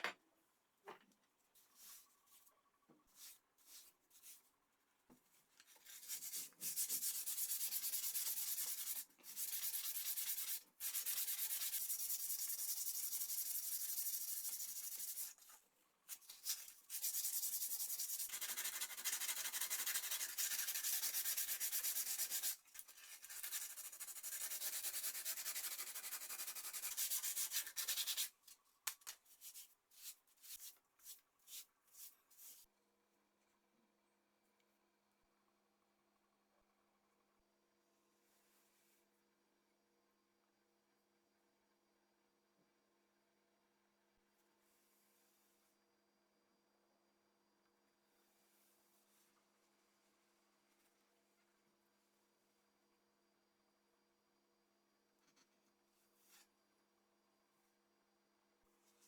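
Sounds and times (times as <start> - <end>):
abrasive rubbing like hand sanding: 16.2 - 28.3.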